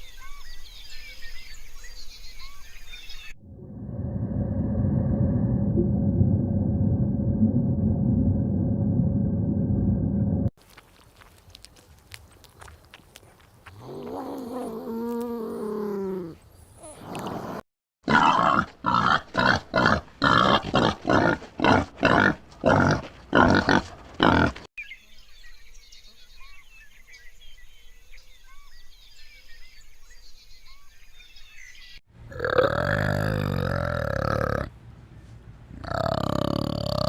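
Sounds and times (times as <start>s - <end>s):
big cat roaring: 13.8s - 16.4s, 32.3s - 34.7s, 35.8s - 37.0s.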